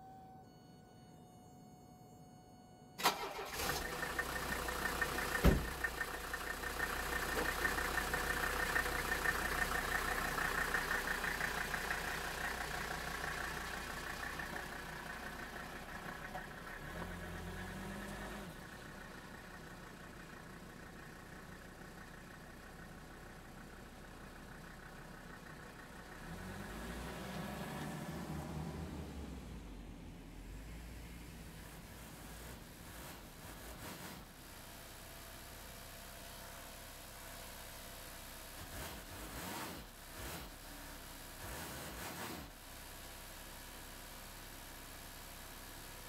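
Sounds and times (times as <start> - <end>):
diesel engine starting and running: 2.8 - 46.0
sharp thump: 5.4 - 5.9.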